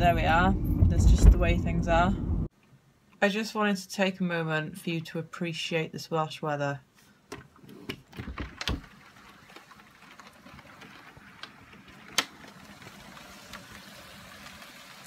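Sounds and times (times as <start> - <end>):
rain against a window: 8.1 - 15.0.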